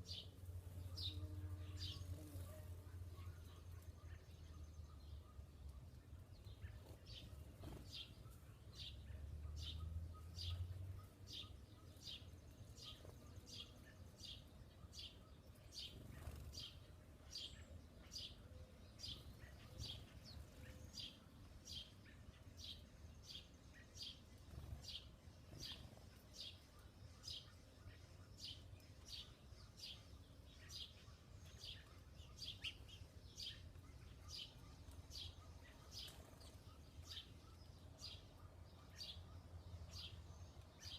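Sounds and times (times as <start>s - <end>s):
bird chirping: 0.0s - 40.9s.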